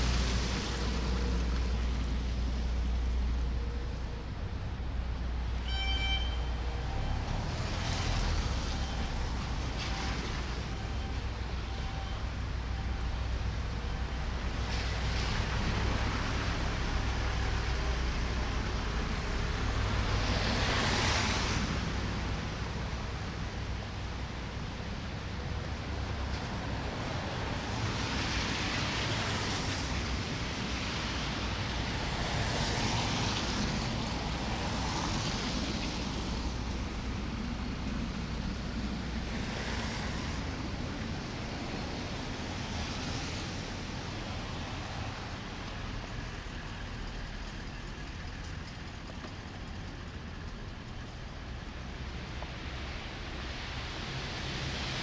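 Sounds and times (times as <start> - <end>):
cars passing on snowy road: 0.0 - 55.0
low rumble of traffic: 0.0 - 55.0
wind: 0.0 - 55.0.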